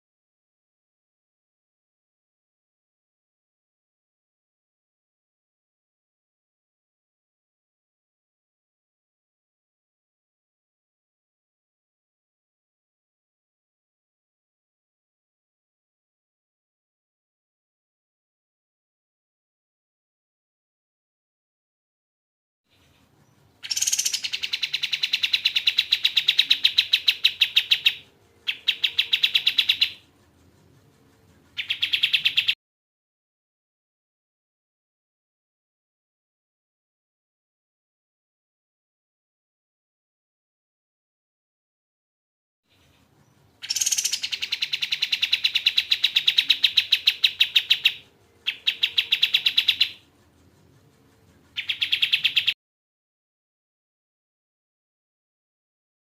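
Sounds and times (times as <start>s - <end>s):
songbird rattling trill: 22.7s - 32.6s, 42.7s - 52.6s.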